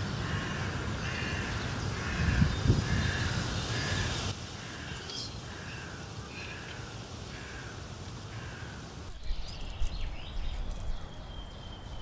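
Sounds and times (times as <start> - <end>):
crows cawing: 0.2 - 9.0.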